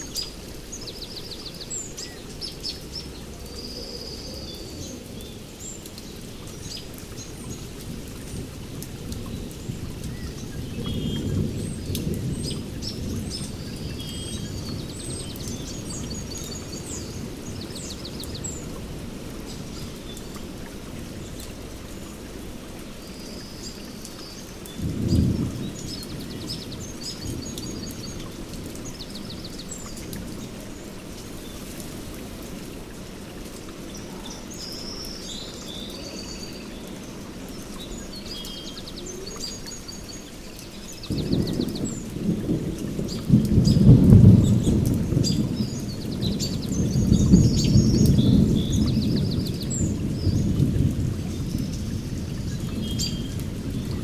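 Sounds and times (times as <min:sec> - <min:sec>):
birds chirping: 0:00.0 - 0:54.0
steady rain: 0:00.0 - 0:54.0
thunder rumbling: 0:06.3 - 0:22.7, 0:24.7 - 0:33.2, 0:40.3 - 0:54.0.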